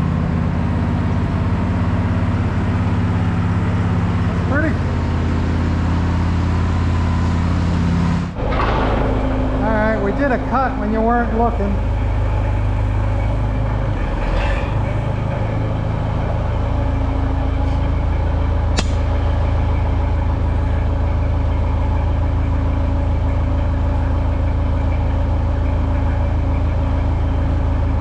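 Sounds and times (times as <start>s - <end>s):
sawmill engine running: 0.0s - 28.0s
sharp click: 18.8s - 19.0s.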